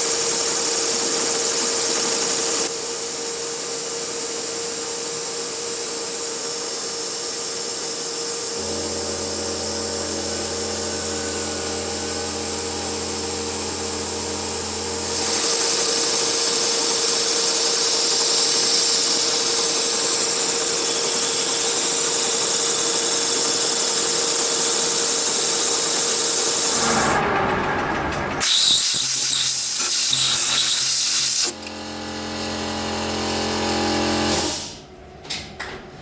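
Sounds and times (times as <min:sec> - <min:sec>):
metal lathe cutting steel: 0:08.6 - 0:34.6.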